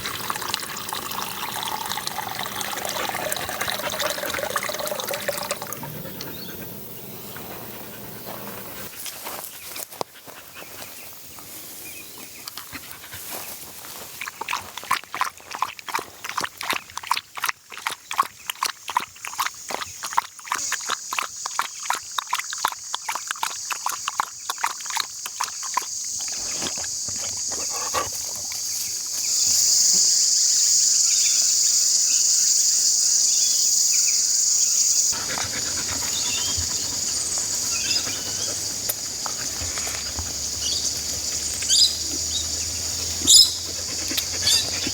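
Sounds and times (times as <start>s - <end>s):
dog lapping water: 0.0s - 9.0s, 12.7s - 28.8s, 35.1s - 44.9s
high insect drone: 25.6s - 44.9s.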